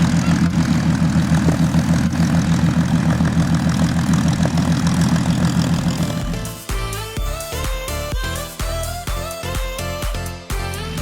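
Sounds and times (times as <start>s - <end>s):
propeller aircraft engine drone: 0.0s - 6.5s.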